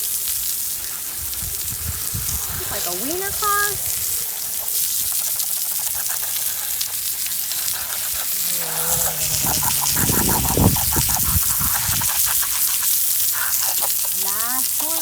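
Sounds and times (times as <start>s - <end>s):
water spray jet hissing: 0.0s - 15.0s
person speaking: 8.2s - 10.8s.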